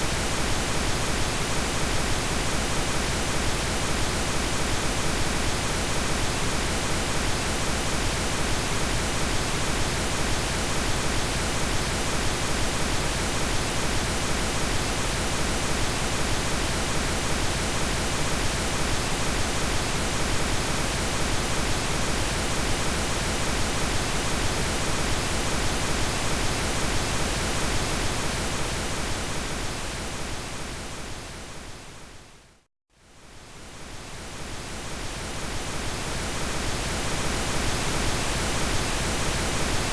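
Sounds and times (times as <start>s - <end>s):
pink noise hiss: 0.0s - 32.0s, 33.2s - 39.9s.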